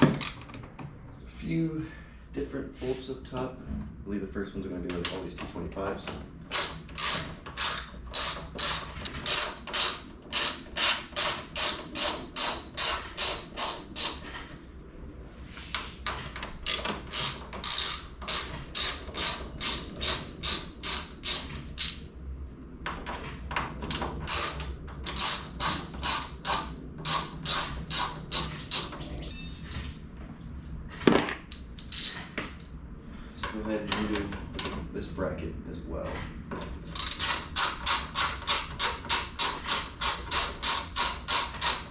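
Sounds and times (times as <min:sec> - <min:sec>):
ratchet wrench clicking: 0:16.7 - 0:22.0, 0:37.0 - 0:41.9.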